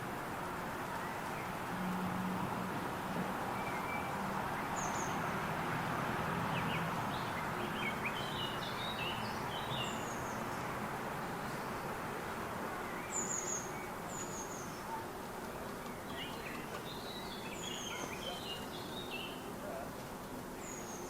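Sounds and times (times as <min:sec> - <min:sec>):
small birds chirping: 0:06.5 - 0:12.1, 0:12.7 - 0:19.6, 0:20.5 - 0:21.0.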